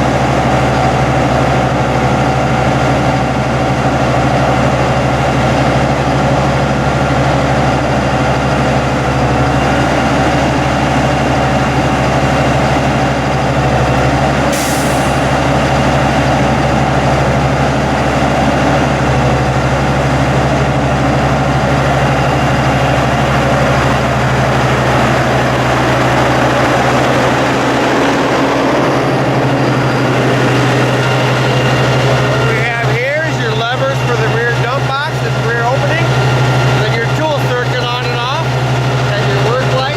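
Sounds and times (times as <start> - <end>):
truck diesel engine running: 0.0 - 39.9
brief hiss: 14.5 - 15.3.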